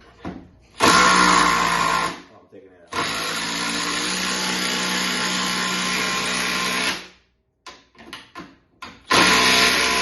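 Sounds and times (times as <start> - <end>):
cordless drill running: 0.8 - 2.2, 2.9 - 7.1, 9.1 - 10.0.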